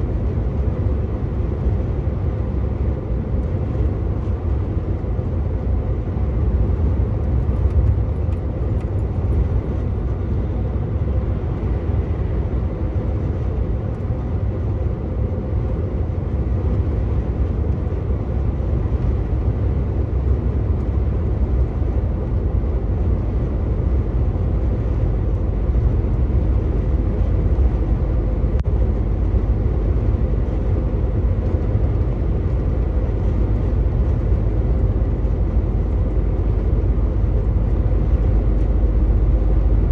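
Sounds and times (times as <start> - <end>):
tyre road noise: 0.0 - 39.9
truck diesel engine: 16.2 - 39.9.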